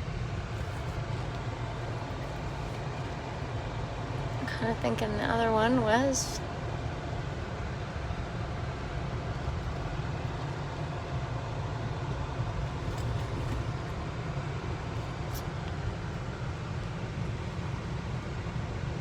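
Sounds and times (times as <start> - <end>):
car driving at low speed: 0.0 - 19.0.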